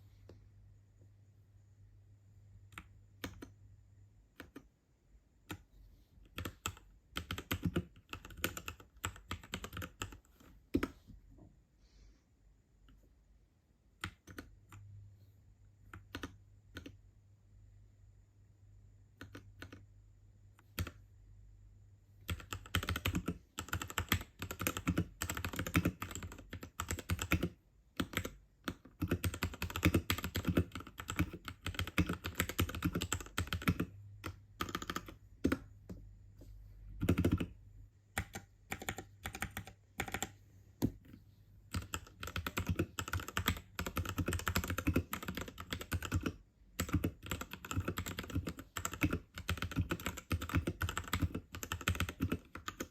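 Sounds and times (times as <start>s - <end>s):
mechanical keyboard typing: 2.7s - 3.6s, 4.2s - 4.7s, 5.4s - 11.0s, 14.0s - 14.8s, 15.8s - 17.0s, 19.1s - 19.9s, 20.6s - 21.0s, 22.2s - 35.7s, 37.0s - 52.9s.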